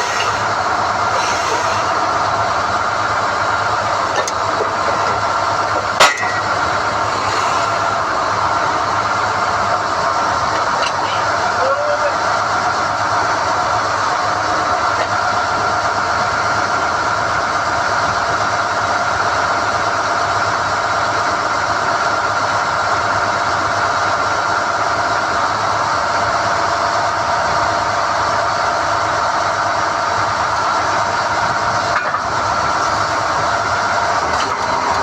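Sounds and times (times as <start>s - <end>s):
high machine whine: 0.0s - 16.8s
drilling rig droning: 0.0s - 35.0s.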